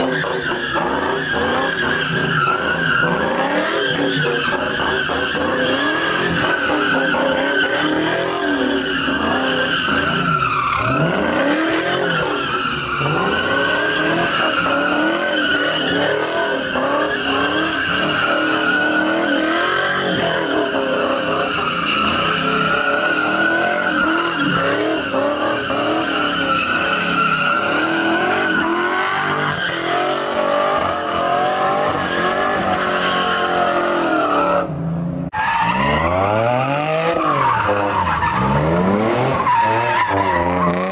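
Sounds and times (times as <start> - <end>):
tires screeching: 0.0 - 40.9
car engine revving high: 35.7 - 40.9.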